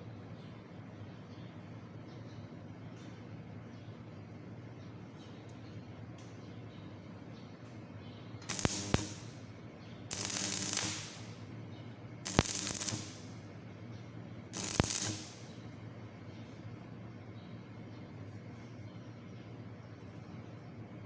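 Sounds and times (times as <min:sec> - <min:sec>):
electrode snap: 0:08.5 - 0:09.4, 0:10.1 - 0:11.4, 0:12.3 - 0:13.3, 0:14.6 - 0:15.5
welding arc crackling and hissing: 0:08.5 - 0:09.4, 0:10.1 - 0:11.4, 0:12.3 - 0:13.4, 0:14.6 - 0:15.5.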